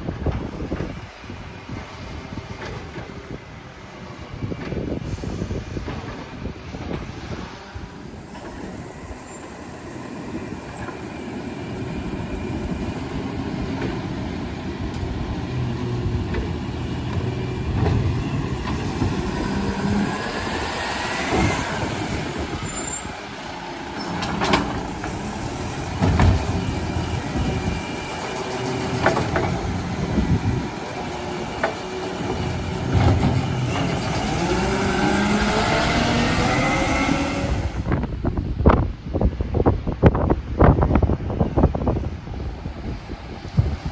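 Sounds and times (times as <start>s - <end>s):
garbage truck engine revving: 8.0s - 38.1s.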